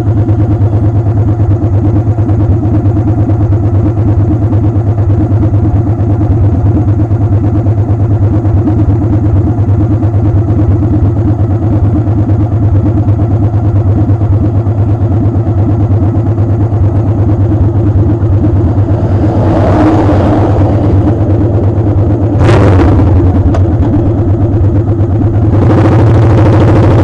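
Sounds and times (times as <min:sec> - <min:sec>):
motorcycle engine running: 0:00.0 - 0:27.0
wind rushing over microphone: 0:17.6 - 0:24.6.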